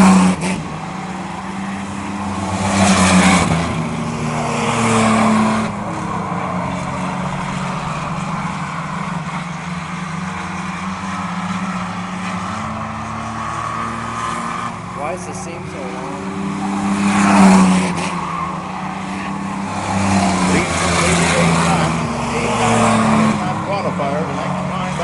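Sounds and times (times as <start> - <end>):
racing truck engines passing: 0.0 - 25.0.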